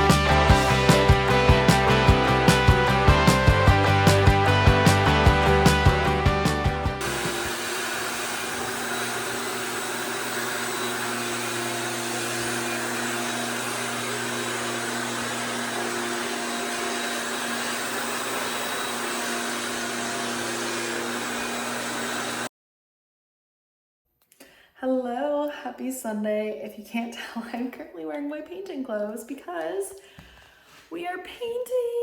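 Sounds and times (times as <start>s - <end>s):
small electric motor running: 0.0s - 22.5s.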